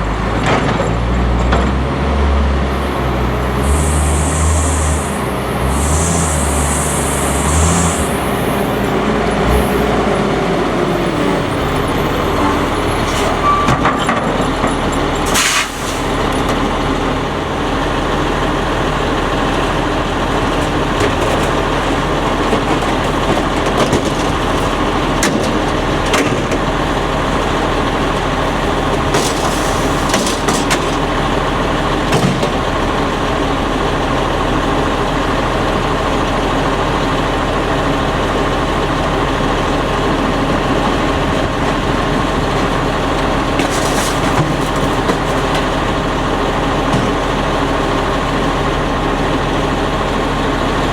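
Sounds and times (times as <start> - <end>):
garbage truck diesel engine running: 0.0 - 50.9
short sharp air hiss: 15.4 - 16.1.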